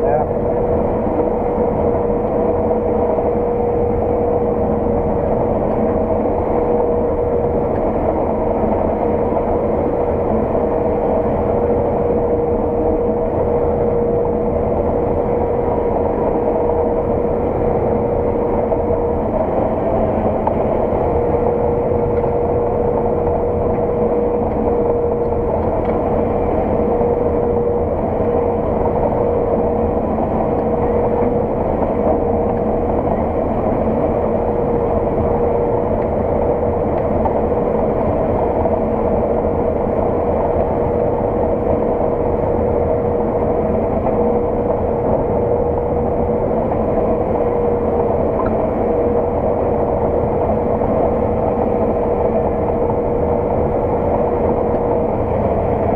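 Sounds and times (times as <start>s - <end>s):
combine harvester engine droning: 0.0s - 55.9s
machinery whine: 0.0s - 55.9s.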